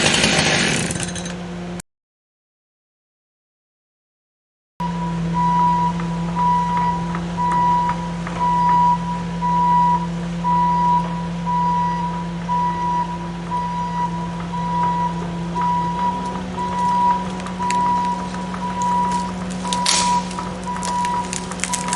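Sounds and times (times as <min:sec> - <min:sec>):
backup alarm beeping: 0:04.8 - 0:21.9
engine humming: 0:04.8 - 0:21.9.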